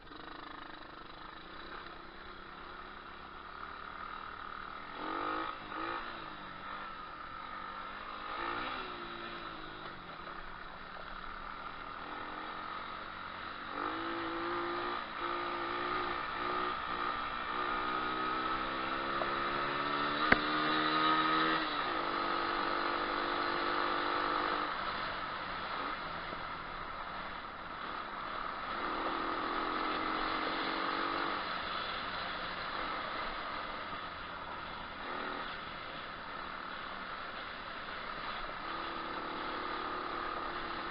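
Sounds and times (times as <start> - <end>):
pit bike engine revving: 0.1 - 40.9
sharp knock: 20.2 - 20.6.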